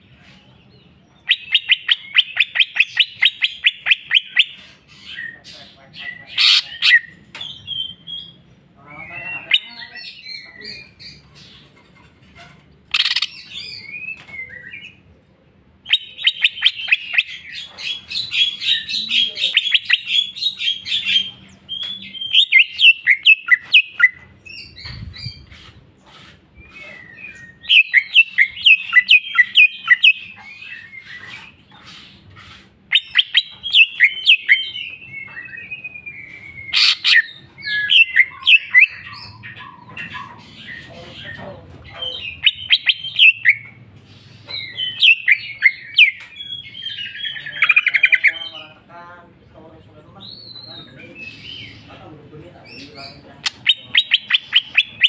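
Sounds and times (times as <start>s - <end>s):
bird singing chirps and trills: 15.8s - 48.9s, 50.1s - 55.0s.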